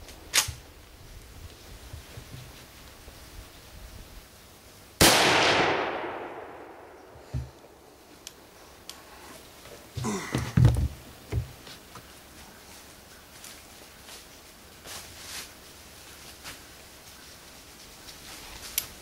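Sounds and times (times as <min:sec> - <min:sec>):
rifle shot with echo: 0:05.0 - 0:07.2.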